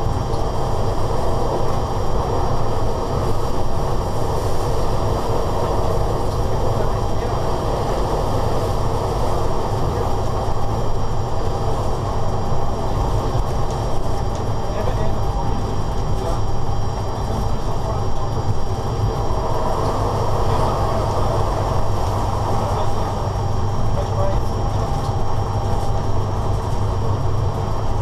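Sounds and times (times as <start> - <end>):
low hum: 15.0 - 28.0.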